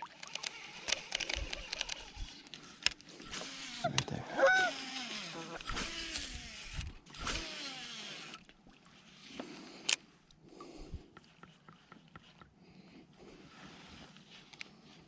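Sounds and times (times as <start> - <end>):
light ticks from reel: 0.0 - 4.1
fishing reel spool whirring: 0.0 - 10.0
sharp reel click: 0.2 - 4.1, 5.0 - 8.4.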